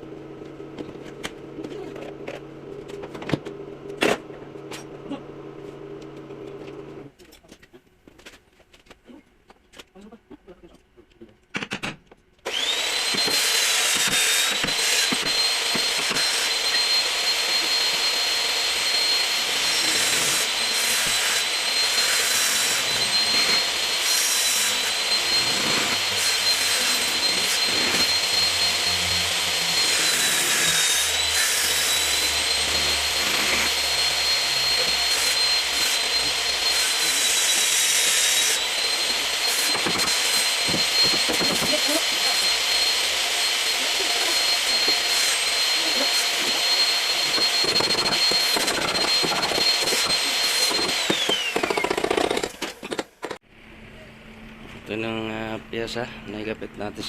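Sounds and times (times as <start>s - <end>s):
power tool whining and grinding: 12.4s - 53.4s.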